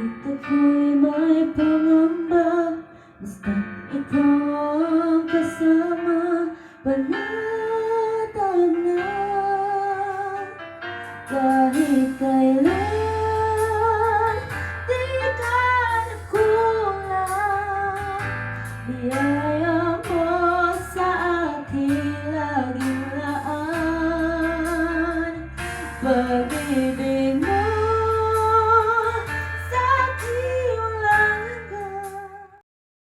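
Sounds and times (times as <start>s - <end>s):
bass: 0.0s - 32.6s
guitar: 6.6s - 32.6s
person singing worship song: 18.9s - 32.6s.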